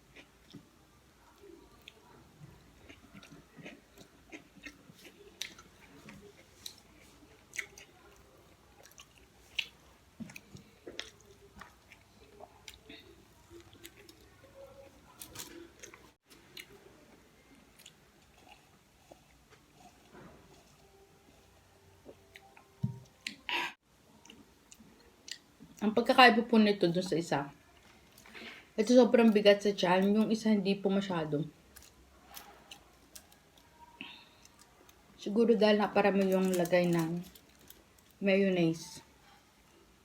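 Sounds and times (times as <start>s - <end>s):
person chewing food: 0.0s - 25.8s.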